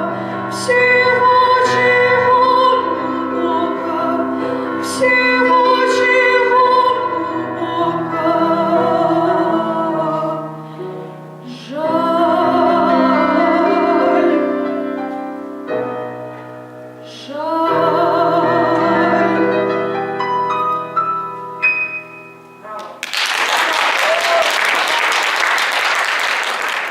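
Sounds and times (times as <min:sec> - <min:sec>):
woman singing classical style: 0:00.0 - 0:15.5, 0:16.2 - 0:20.2
piano accompaniment: 0:00.0 - 0:23.0.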